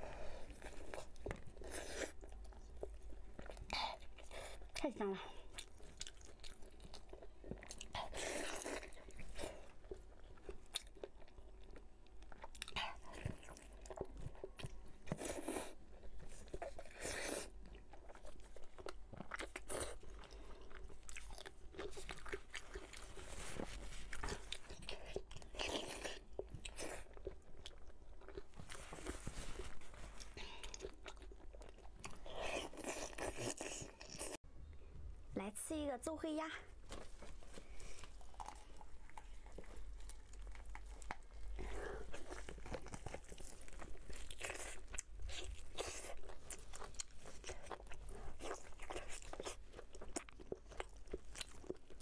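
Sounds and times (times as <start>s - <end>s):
person biting and chewing: 36.9s - 52.0s.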